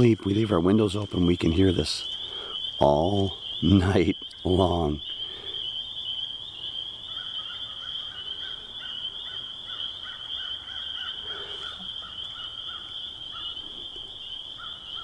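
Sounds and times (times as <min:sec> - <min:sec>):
frogs trilling: 0:00.0 - 0:15.0
lower frog call repeating: 0:06.6 - 0:15.0.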